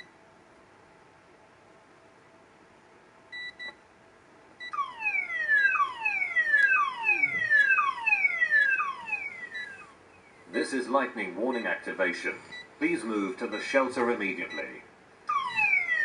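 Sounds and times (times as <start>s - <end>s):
warning siren falling wail: 4.7s - 10.0s, 15.3s - 16.0s.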